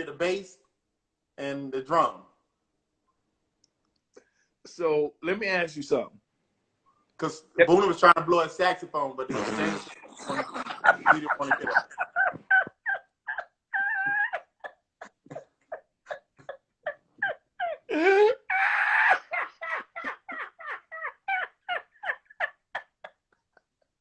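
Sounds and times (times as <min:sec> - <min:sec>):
hysterical wheezing laughter: 0:10.0 - 0:23.9.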